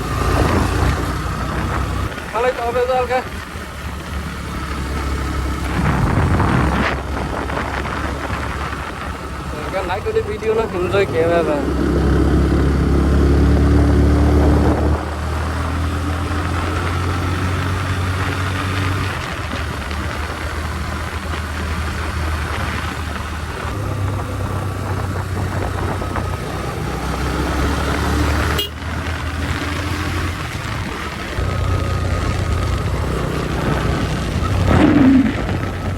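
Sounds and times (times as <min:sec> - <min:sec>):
motorcycle engine running: 0:00.0 - 0:35.9
wind and road noise: 0:00.0 - 0:35.9.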